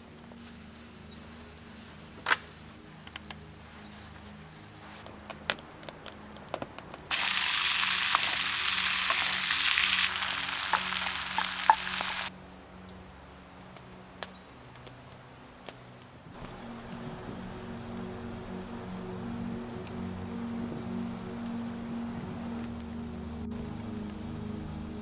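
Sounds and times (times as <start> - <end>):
food sizzling in a hot pan: 7.1 - 12.3.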